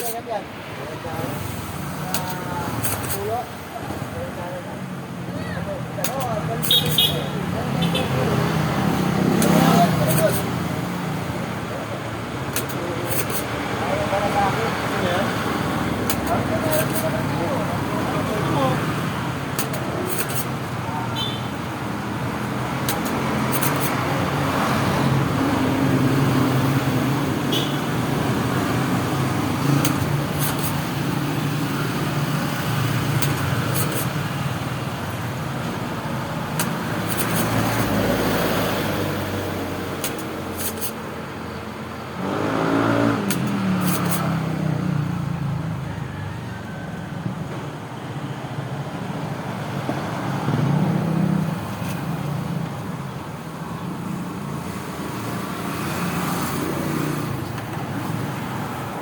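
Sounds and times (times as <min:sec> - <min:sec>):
vehicle engines running: 0:00.0 - 0:59.0
vehicle passing by: 0:04.4 - 0:12.1, 0:21.6 - 0:46.4, 0:49.6 - 0:53.0.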